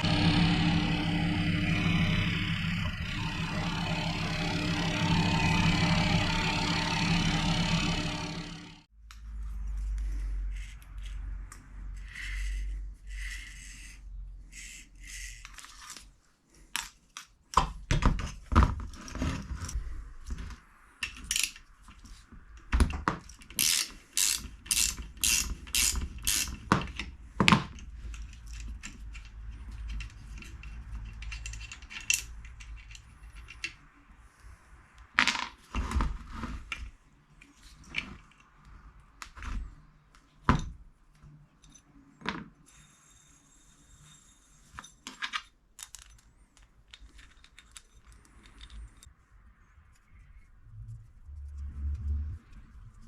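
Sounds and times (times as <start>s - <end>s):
tools and parts clicking and knocking: 21.0s - 33.8s, 44.7s - 49.1s.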